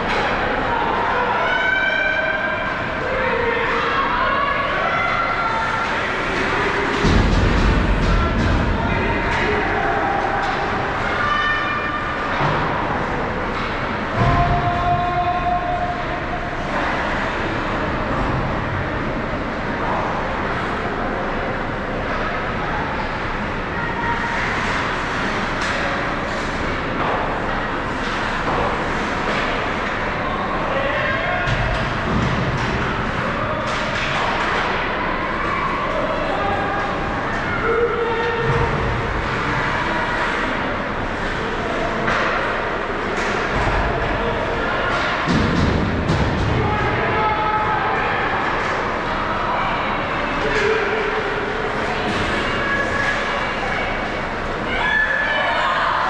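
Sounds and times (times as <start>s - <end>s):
ice rink noise: 0.0s - 56.0s
reverberant arena noise: 0.0s - 56.0s.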